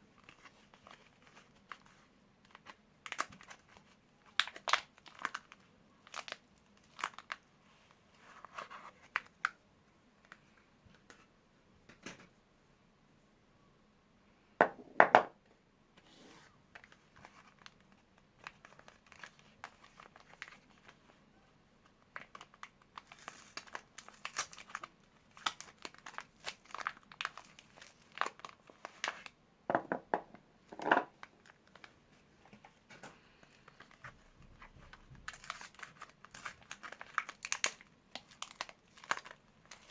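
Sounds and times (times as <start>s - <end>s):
wrappers crinkling and tearing: 0.2s - 9.6s, 16.8s - 21.2s, 21.9s - 29.3s, 32.6s - 39.9s.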